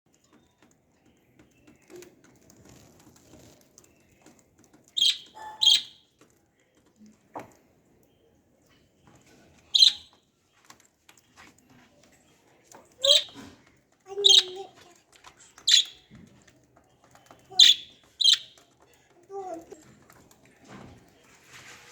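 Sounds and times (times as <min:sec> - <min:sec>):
lovebirds shrill calls: 0:05.0 - 0:06.0, 0:09.7 - 0:10.1, 0:13.0 - 0:13.4, 0:15.7 - 0:16.0, 0:17.6 - 0:18.6.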